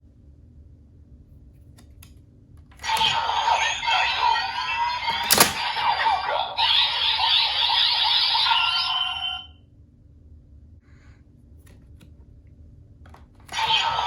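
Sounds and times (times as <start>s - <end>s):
electronic toy sound effects: 2.8s - 9.5s, 13.5s - 14.0s.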